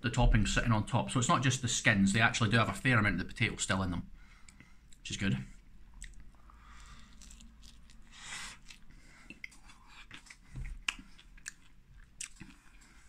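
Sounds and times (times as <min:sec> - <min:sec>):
soft wet chewing with crunches: 0:05.9 - 0:13.0.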